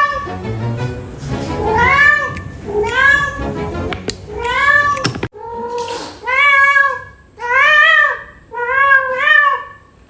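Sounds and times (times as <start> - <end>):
cat meowing: 1.6 - 3.4, 4.3 - 9.8.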